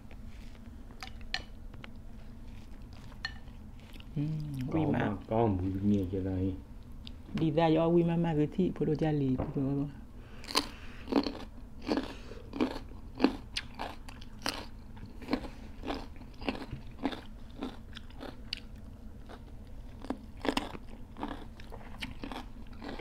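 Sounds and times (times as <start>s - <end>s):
crunchy chewing of cucumber: 10.4s - 23.0s.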